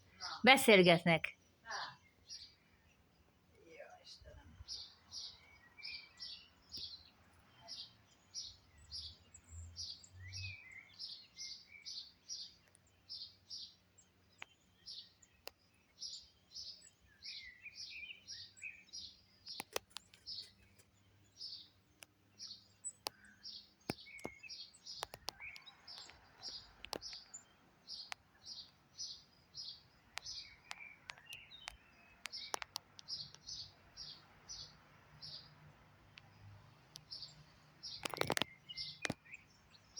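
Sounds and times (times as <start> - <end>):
small birds chirping: 0.0 - 39.9
sharp clicks: 19.5 - 20.3, 23.9 - 27.3, 30.1 - 33.5, 36.9 - 37.2, 37.8 - 39.4.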